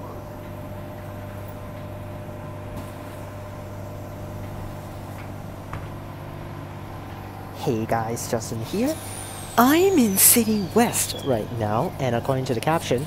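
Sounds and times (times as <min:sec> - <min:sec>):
train electric hum: 0:00.0 - 0:13.0.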